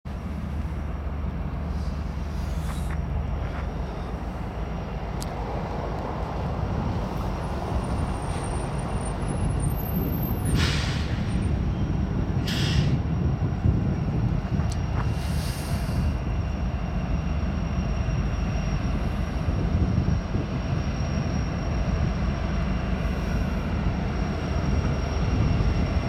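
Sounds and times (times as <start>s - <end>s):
diesel locomotives rumbling: 0.1s - 26.0s
air brake hisses: 1.7s - 3.0s, 10.4s - 11.4s, 12.4s - 13.0s, 15.1s - 16.2s.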